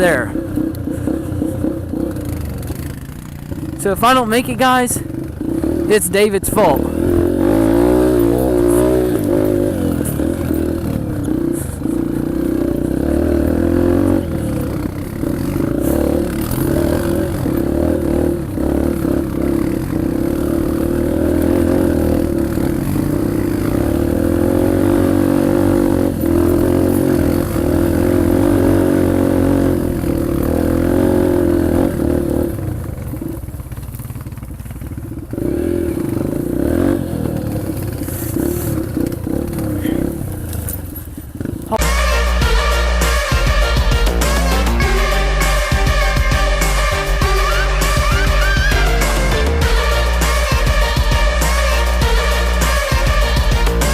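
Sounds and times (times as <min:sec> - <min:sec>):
dirt bike engine under load: 0:00.0 - 0:41.9.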